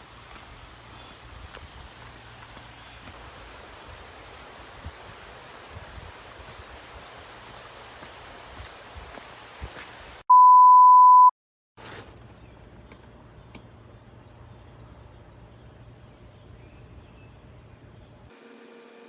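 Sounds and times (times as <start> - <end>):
electronic beep: 10.3 - 11.3.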